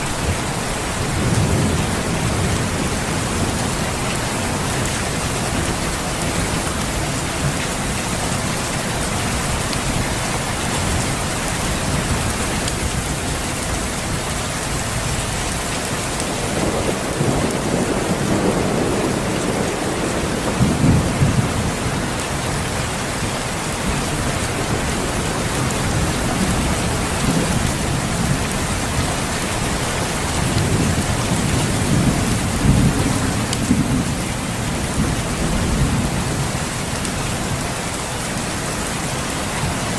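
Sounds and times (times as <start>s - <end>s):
steady rain: 0.0s - 39.9s
distant thunder rumbling: 16.2s - 22.8s.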